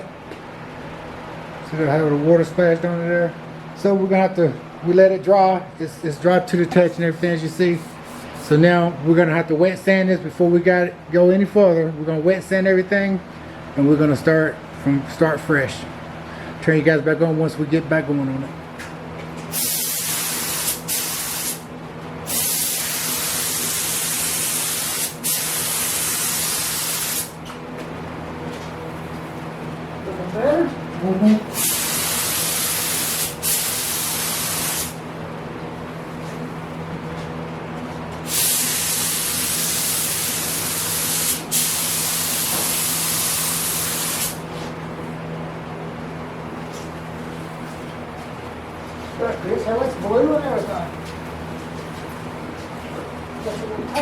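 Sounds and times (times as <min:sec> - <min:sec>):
steady low hum: 0:00.0 - 0:54.0
air gun hissing: 0:19.5 - 0:21.6, 0:22.3 - 0:27.4, 0:31.5 - 0:35.0, 0:38.2 - 0:44.4.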